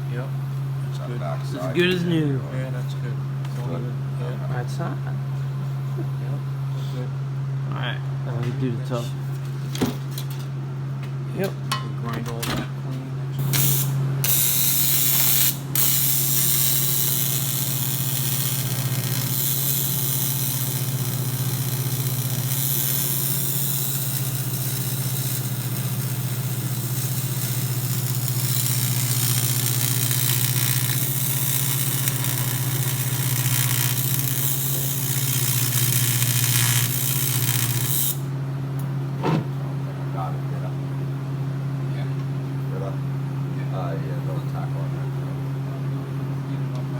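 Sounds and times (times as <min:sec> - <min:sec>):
grinder grinding metal: 0:13.4 - 0:38.3.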